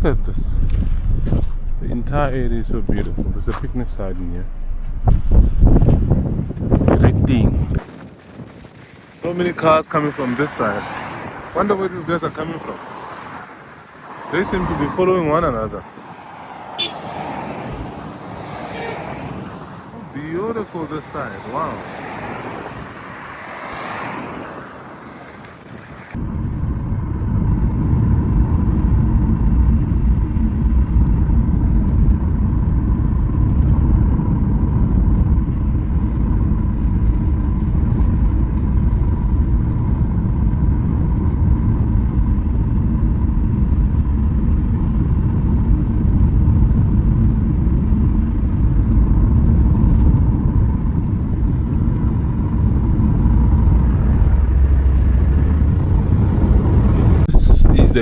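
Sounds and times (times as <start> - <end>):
car driving rumble: 0.0 - 58.0.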